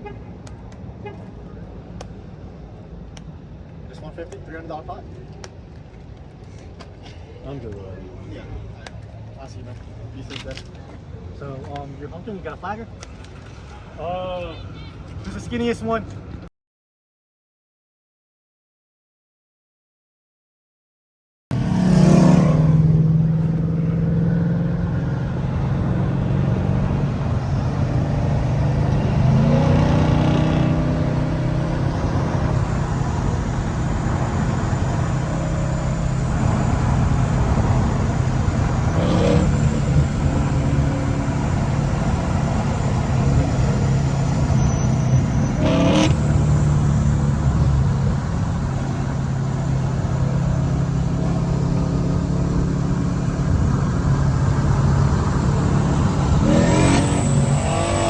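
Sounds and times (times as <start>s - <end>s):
car engine idling and revving: 21.5s - 58.0s.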